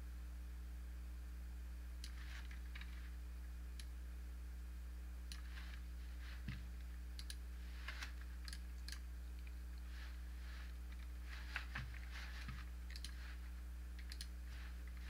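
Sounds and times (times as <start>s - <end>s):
low electrical hum: 0.0s - 15.0s
computer mouse clicking: 2.0s - 3.0s, 7.2s - 9.9s, 10.9s - 13.4s, 14.0s - 15.0s.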